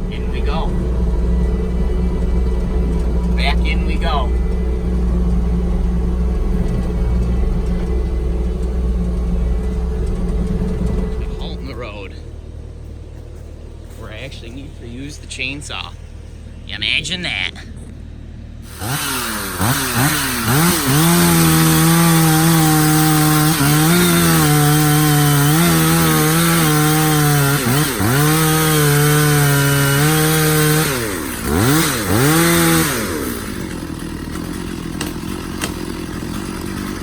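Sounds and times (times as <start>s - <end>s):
chainsaw cutting wood: 18.6s - 37.0s.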